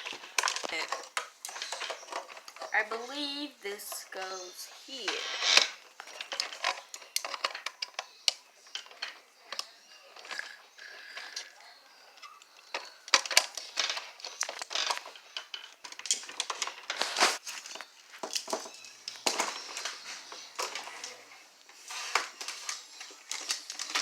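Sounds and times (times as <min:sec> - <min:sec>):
plastic toy parts clicking: 0:05.0 - 0:11.6, 0:12.2 - 0:17.1.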